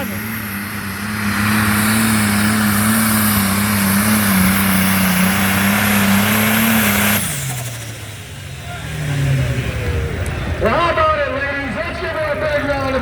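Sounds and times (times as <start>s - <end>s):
diesel engine running flat out: 0.0s - 13.0s
exhaust rush: 0.0s - 13.0s.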